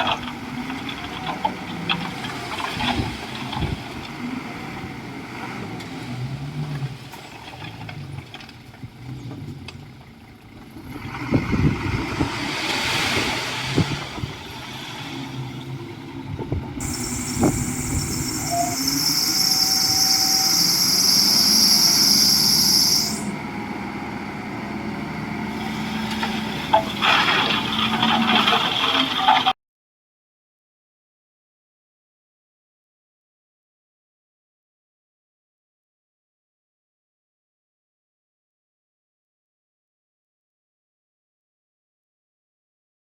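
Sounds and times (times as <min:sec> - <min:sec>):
bulldozer diesel engine: 0:00.0 - 0:29.6
high-pitched shrill sound: 0:16.8 - 0:23.4
crashing and scraping: 0:26.0 - 0:29.5.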